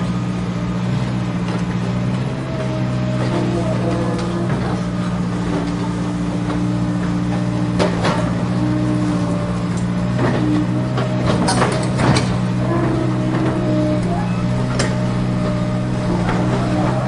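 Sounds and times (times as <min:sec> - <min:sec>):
toy excavator motor drone: 0:02.3 - 0:06.1, 0:08.3 - 0:17.0.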